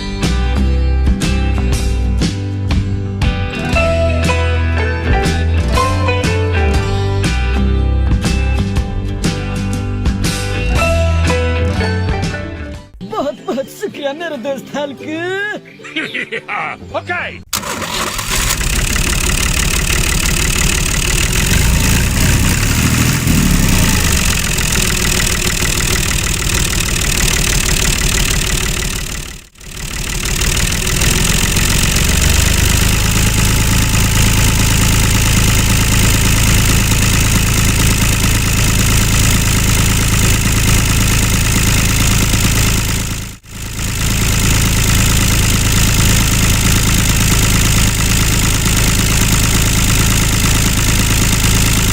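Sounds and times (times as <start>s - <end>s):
mini tractor engine running: 17.5s - 51.9s.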